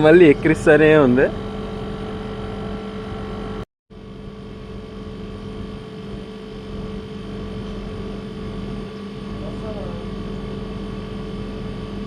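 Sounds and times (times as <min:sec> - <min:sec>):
steady tones: 0:00.0 - 0:03.6
air conditioning unit hum: 0:00.0 - 0:12.0.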